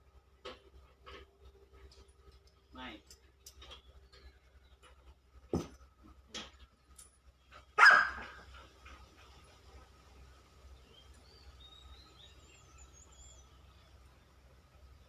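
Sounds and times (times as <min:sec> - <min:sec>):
dog barking: 0:07.8 - 0:08.4.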